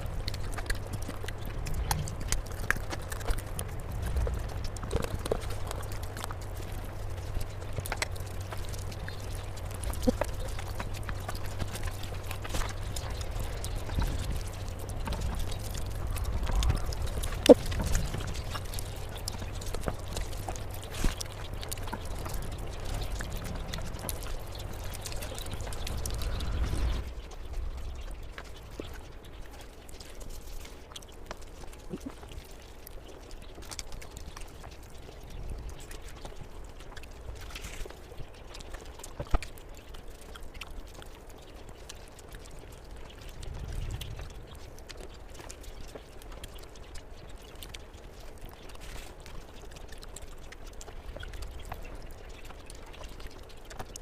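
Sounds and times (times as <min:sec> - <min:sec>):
low rumble: 0:00.0 - 0:30.0
wet eating squelching and smacking: 0:00.0 - 0:54.0.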